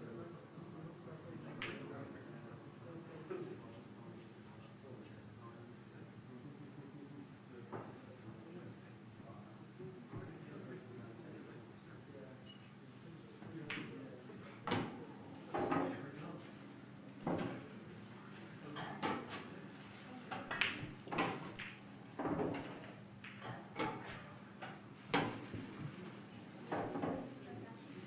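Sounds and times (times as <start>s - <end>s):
faint steady hum: 0.0s - 28.0s
pool balls clacking on a table: 14.7s - 16.0s, 18.8s - 19.5s, 20.3s - 26.0s, 26.7s - 27.3s.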